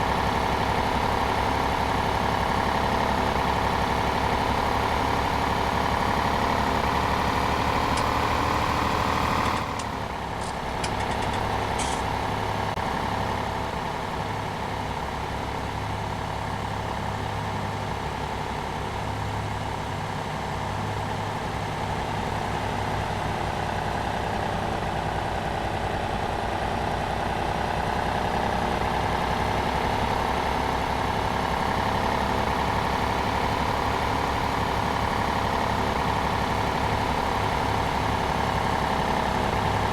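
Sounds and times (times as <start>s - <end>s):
tractor engine idling: 0.0s - 39.9s
clicks: 7.8s - 12.1s.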